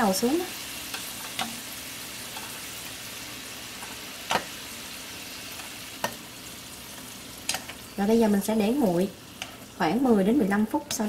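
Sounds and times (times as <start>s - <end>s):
fries sizzling in oil: 0.0s - 11.0s
chopsticks tapping a pan: 0.9s - 1.6s, 3.8s - 4.5s.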